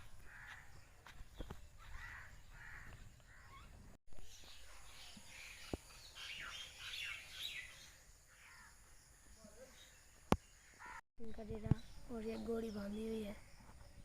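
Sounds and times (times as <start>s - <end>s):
small birds chirping: 0.0s - 14.0s
crows cawing: 0.2s - 0.9s, 1.8s - 3.5s, 8.3s - 8.8s, 10.6s - 11.0s.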